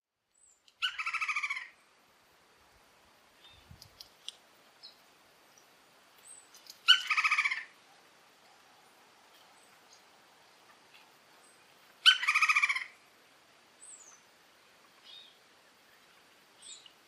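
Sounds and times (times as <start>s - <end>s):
woodpecker rattling call: 0.7s - 1.8s, 6.6s - 7.8s, 12.0s - 13.0s.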